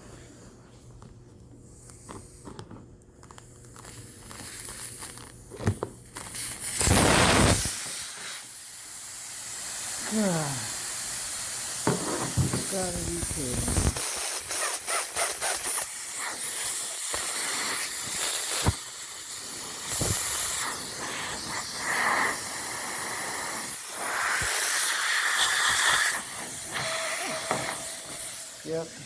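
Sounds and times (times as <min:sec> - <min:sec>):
air hissing from tire: 0:06.1 - 0:29.0.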